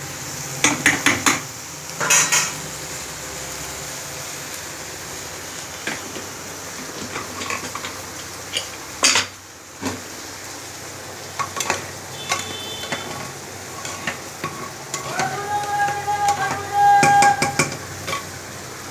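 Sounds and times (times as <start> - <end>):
food sizzling in a pan: 0.0 - 18.9
utensil knocking against pan: 0.6 - 1.5, 11.4 - 18.3
spatula scraping a pan: 5.8 - 8.8, 11.3 - 18.6.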